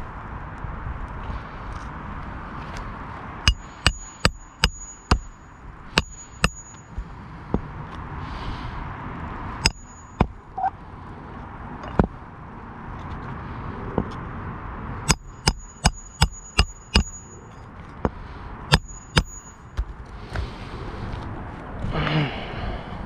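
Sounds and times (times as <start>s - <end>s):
hammer striking nails: 3.5s - 7.7s, 9.6s - 10.4s, 15.1s - 17.3s, 18.7s - 19.9s.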